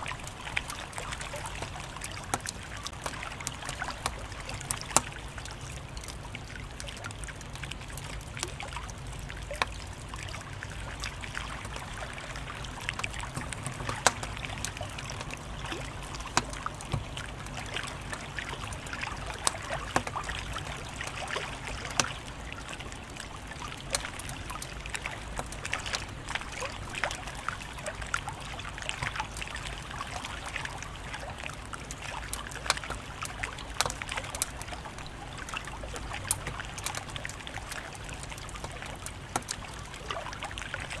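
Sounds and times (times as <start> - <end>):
wood fire crackling: 0.0 - 31.0, 31.7 - 40.2.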